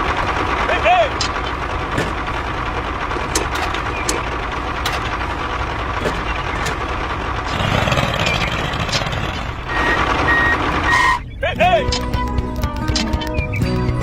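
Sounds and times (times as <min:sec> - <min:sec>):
machine engine drone: 0:00.0 - 0:14.0
sharp clicks: 0:00.6 - 0:02.3, 0:03.0 - 0:05.2, 0:06.0 - 0:09.5, 0:11.8 - 0:13.6.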